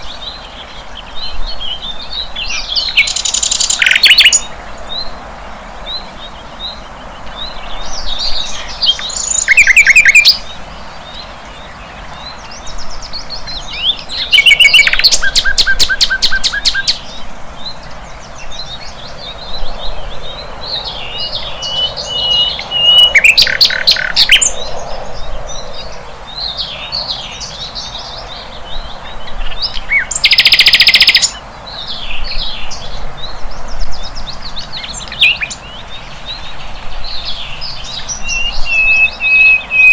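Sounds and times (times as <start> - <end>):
bird singing chirps and whistles: 1.2 - 5.1, 5.9 - 10.5, 12.2 - 17.1, 20.8 - 24.6, 28.8 - 32.8, 34.0 - 39.9
rapid repeated bird notes: 1.8 - 19.5, 26.4 - 32.9.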